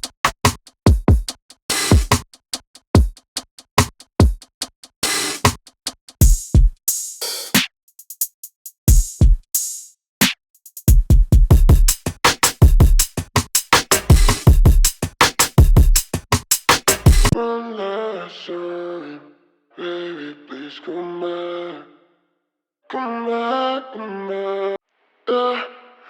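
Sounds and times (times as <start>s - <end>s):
deep kick drums: 0.9s - 1.3s, 6.2s - 6.8s, 10.9s - 12.0s, 12.6s - 13.1s, 14.1s - 15.0s, 15.6s - 16.1s, 17.1s - 17.4s
hi-hat ticks: 5.5s - 9.7s, 10.6s - 17.4s.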